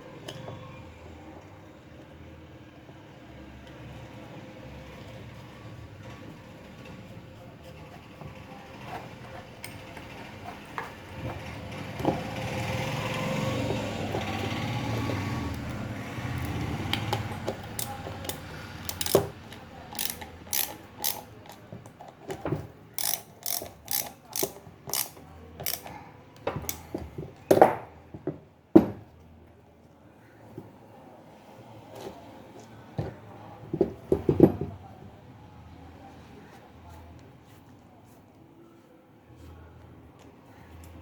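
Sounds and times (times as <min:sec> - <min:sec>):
sharp clicks and knocks: 0:16.4 - 0:21.6.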